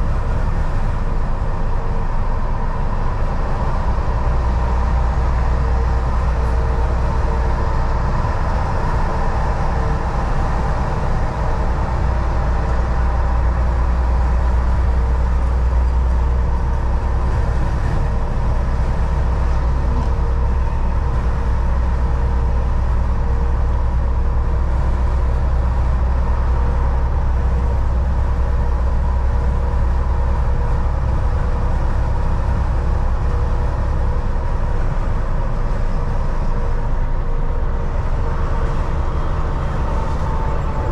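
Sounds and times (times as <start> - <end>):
constant hum: 0.0 - 40.9
truck diesel engine drone: 0.0 - 40.9
tyre and road noise: 0.0 - 40.9.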